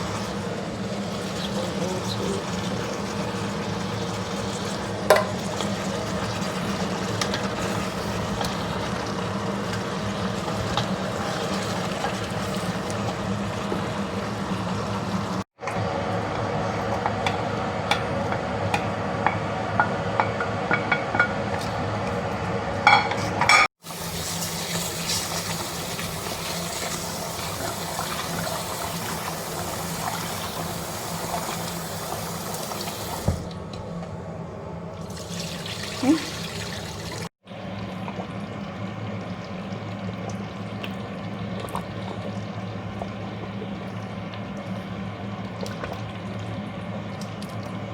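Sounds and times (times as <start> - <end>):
steady background hum: 33.5 - 47.9.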